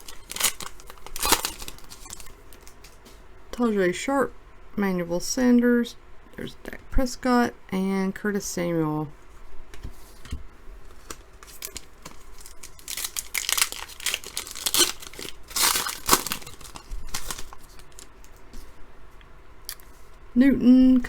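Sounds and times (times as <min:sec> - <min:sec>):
foil pack tearing: 0:00.0 - 0:03.0, 0:11.0 - 0:18.4
wrapper crinkling: 0:00.0 - 0:03.0, 0:10.9 - 0:18.4
cards rustling: 0:00.0 - 0:03.1, 0:10.8 - 0:18.8.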